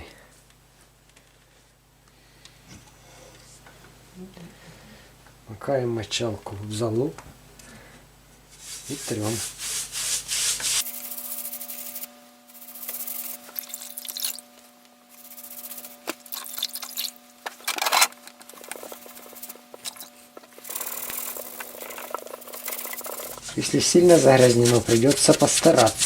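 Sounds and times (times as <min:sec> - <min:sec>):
sponge scrubbing glass: 0:08.6 - 0:12.0, 0:18.8 - 0:26.0.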